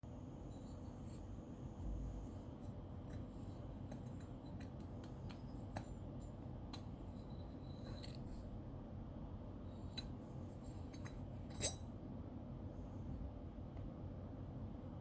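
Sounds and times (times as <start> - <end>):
faint ring: 0.3 - 8.6, 9.6 - 12.0.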